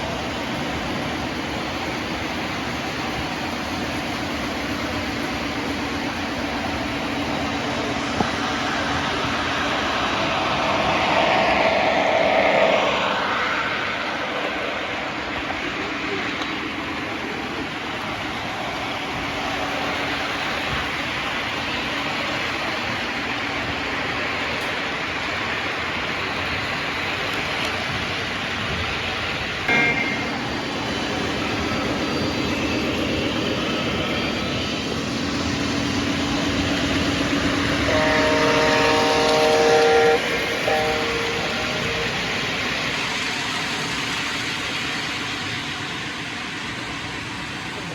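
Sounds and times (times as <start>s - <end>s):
model train whirring: 0.0s - 47.9s
train horn: 29.7s - 30.4s, 37.6s - 42.4s.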